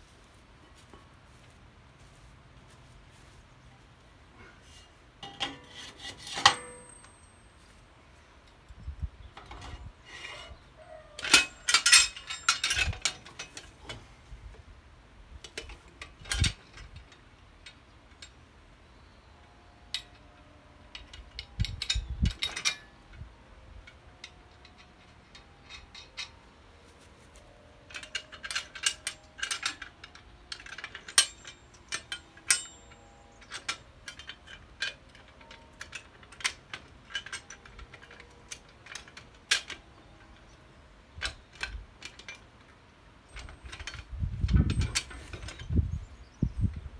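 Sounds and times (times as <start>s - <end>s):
faint metallic ringing: 3.2s - 14.3s, 17.6s - 41.0s
metallic clicks and clanks: 4.7s - 7.4s, 11.2s - 14.1s, 15.4s - 18.4s, 19.9s - 20.3s, 20.9s - 45.9s.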